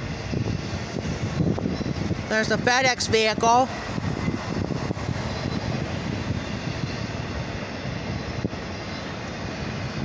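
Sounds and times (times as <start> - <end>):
freight train rumbling past: 0.0 - 10.0.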